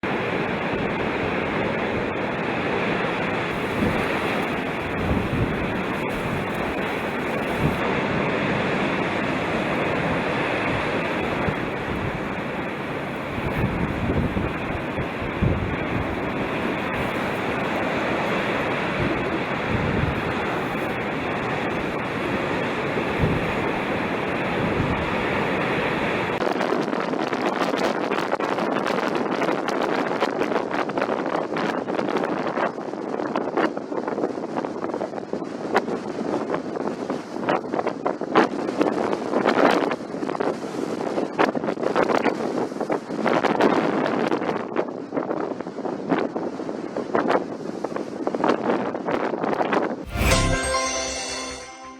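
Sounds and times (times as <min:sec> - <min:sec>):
wind buffeting microphone: 0:03.5 - 0:07.8, 0:13.3 - 0:17.7.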